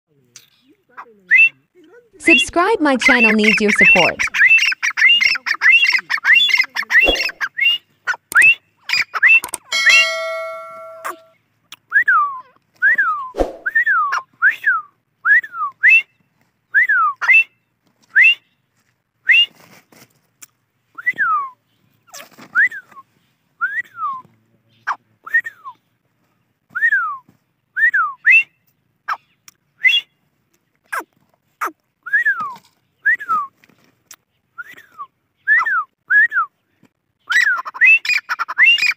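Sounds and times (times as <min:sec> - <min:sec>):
francolin whistled calls: 0:03.0 - 0:07.8.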